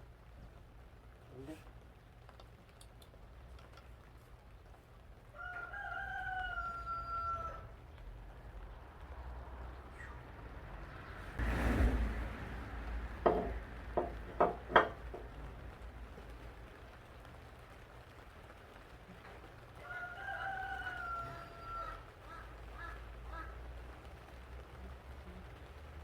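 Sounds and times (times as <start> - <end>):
rooster crowing: 5.3 - 7.8, 19.8 - 23.5
sharp knocks: 13.2 - 15.4.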